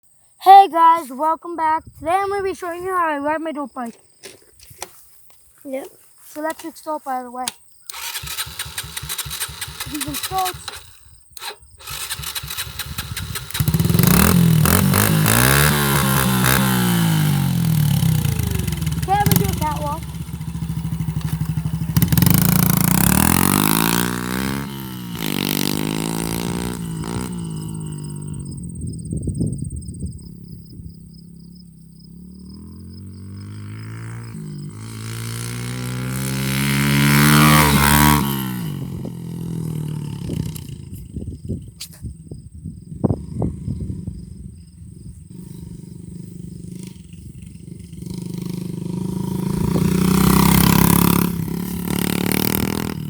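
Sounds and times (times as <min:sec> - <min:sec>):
dirt bike engine revving: 0:06.4 - 0:29.2, 0:30.4 - 0:41.5, 0:45.3 - 0:53.0.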